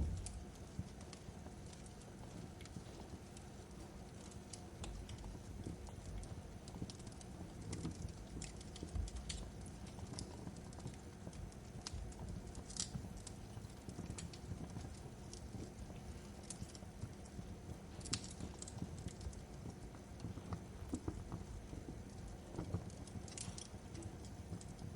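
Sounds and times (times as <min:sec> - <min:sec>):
fire crackling: 0:00.0 - 0:24.9
low rumble of burning wood: 0:00.0 - 0:24.9.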